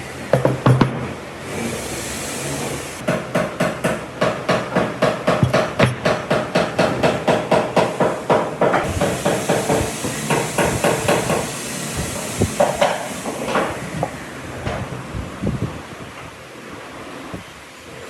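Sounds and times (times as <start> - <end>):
rapid hammering: 1.5 - 13.7
scattered knocks: 3.0 - 11.5
steady hiss: 7.5 - 18.0.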